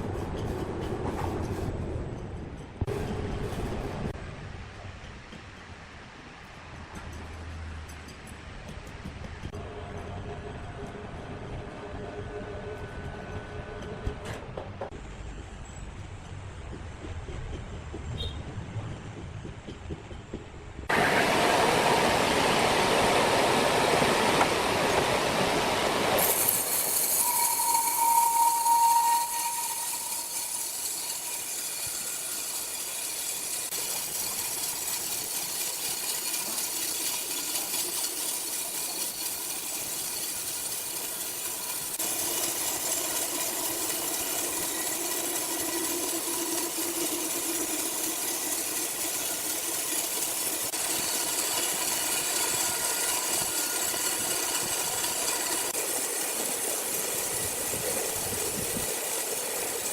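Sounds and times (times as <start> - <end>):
low hum: 9.6 - 17.3
sawmill machinery hissing: 20.9 - 59.9.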